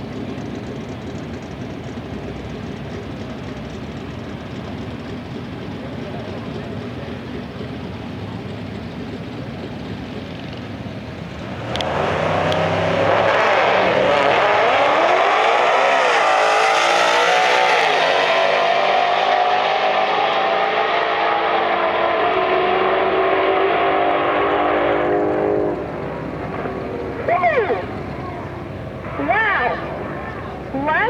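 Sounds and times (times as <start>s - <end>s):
race car engine at full throttle: 0.0s - 31.0s.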